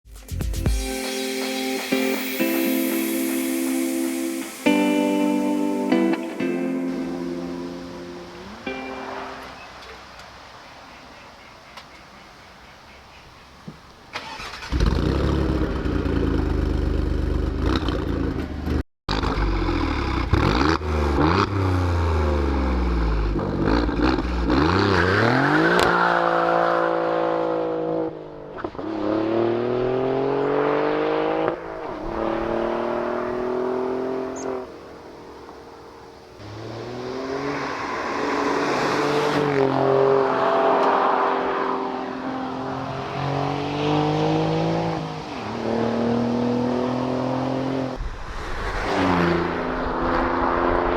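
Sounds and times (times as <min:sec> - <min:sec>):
car engine accelerating hard: 0:14.2 - 0:48.0.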